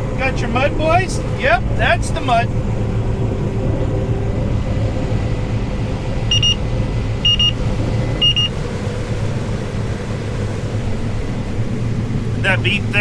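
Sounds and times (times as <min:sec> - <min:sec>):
engine rumbling: 0:00.0 - 0:13.0
high electronic warning beeps: 0:06.3 - 0:06.6, 0:07.2 - 0:08.5.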